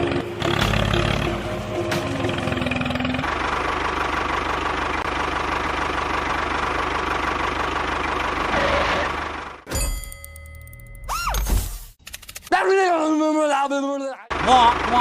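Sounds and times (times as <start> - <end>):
small engine chugging: 2.1 - 9.6.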